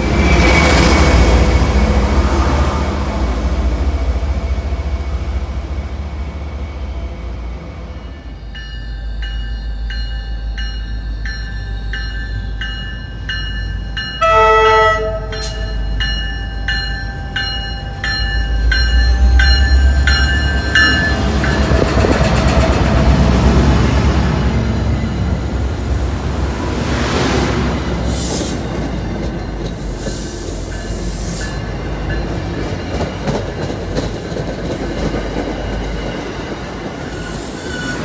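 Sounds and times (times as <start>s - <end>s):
rail cars rolling past: 0.0s - 38.0s
locomotive bell ringing: 7.9s - 26.1s, 29.0s - 34.0s
train horn blast: 14.2s - 15.8s.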